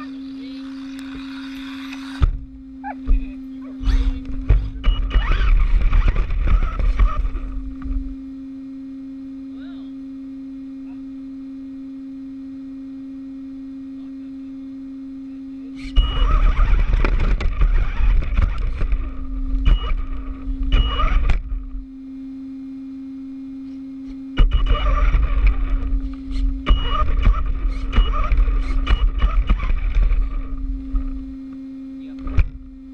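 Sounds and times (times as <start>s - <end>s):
rc car motor and tyres: 0.0s - 2.5s, 3.8s - 8.2s, 15.8s - 21.8s, 24.4s - 32.6s
low hum: 0.0s - 32.9s.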